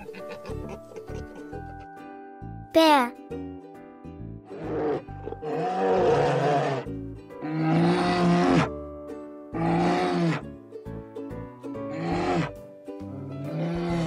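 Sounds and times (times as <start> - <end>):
light background music: 0.0 - 14.0
bear growling: 4.5 - 8.7, 9.5 - 10.4, 11.9 - 14.0.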